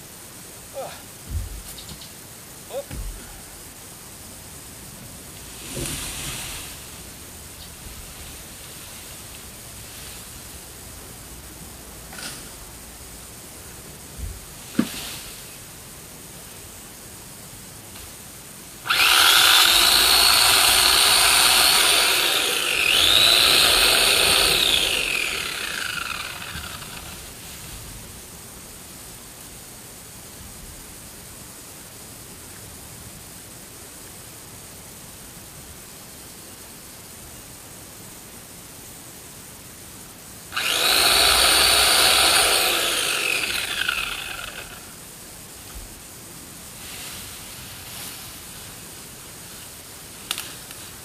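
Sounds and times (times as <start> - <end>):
electric chainsaw running: 18.9 - 27.2, 40.5 - 44.9.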